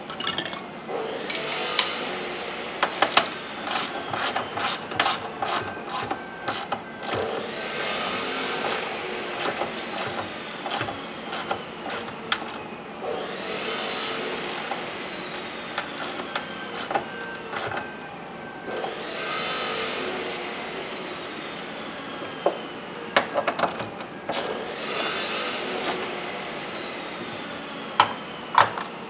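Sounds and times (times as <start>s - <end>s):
hand tools clicking and knocking: 0.0s - 0.7s, 2.8s - 7.9s, 8.6s - 12.6s, 14.3s - 17.8s, 23.3s - 25.2s, 25.8s - 26.1s.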